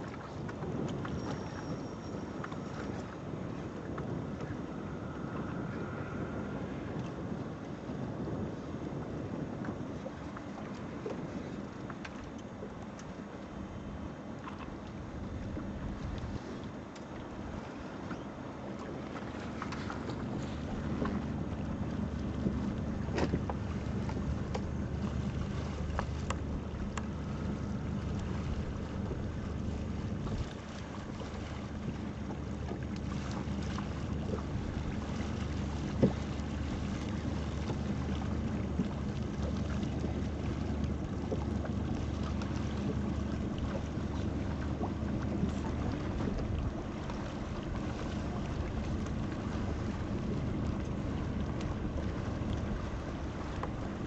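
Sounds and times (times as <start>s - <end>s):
wind buffeting microphone: 0.0s - 11.9s, 17.4s - 54.0s
water rushing past hull: 0.0s - 54.0s.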